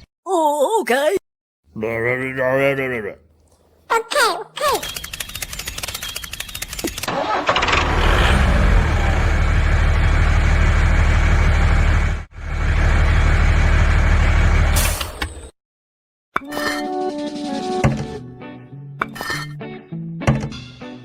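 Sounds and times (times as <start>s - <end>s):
engine cranking with clicking: 4.8s - 8.6s
engine running with deep rumble: 7.1s - 14.9s.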